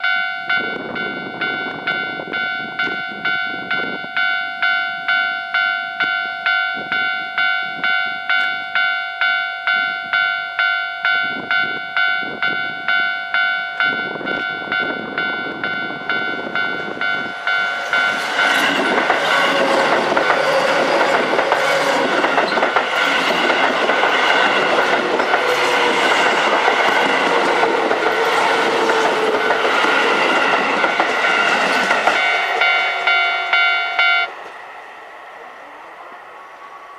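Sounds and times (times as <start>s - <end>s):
crossing bell dinging: 0.0s - 35.0s
train wheels clattering on rails: 15.6s - 34.7s.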